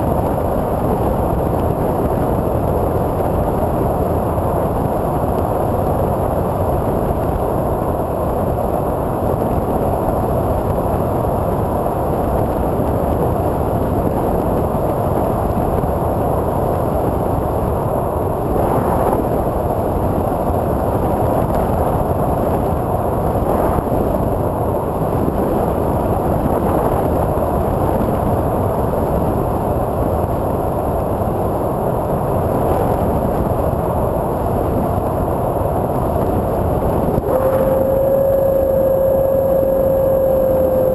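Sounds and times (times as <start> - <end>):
wind rush: 0.0 - 40.9
propeller noise: 33.1 - 40.9.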